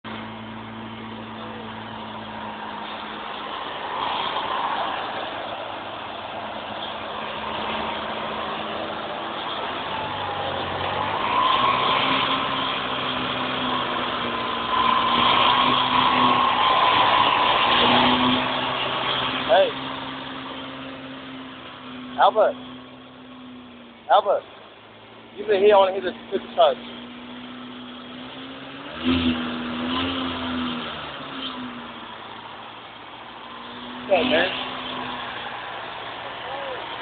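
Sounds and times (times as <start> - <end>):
car engine idling: 15.5 - 28.5.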